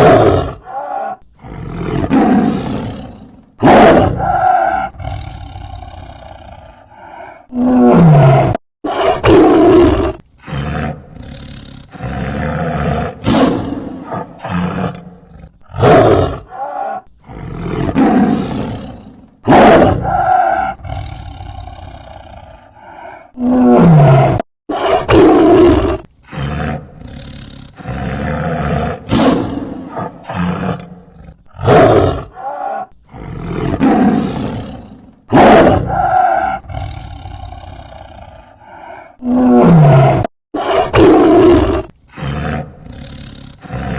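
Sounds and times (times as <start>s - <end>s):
tiger growling: 0.0s - 43.9s
tiger roaring: 0.0s - 43.9s.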